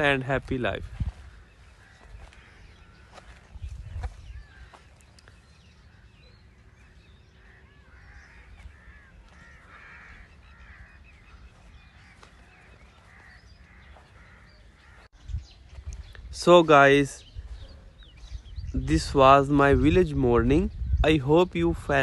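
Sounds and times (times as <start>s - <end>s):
birds calling: 0.0s - 22.0s
crows cawing: 1.1s - 15.1s.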